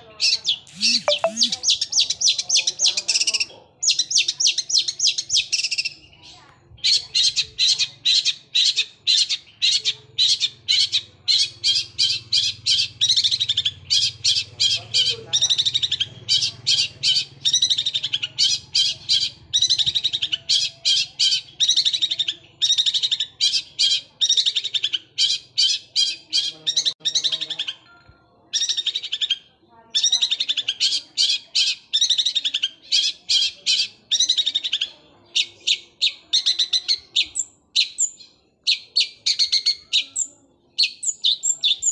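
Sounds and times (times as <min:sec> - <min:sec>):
bird chattering song: 0:00.0 - 0:41.9.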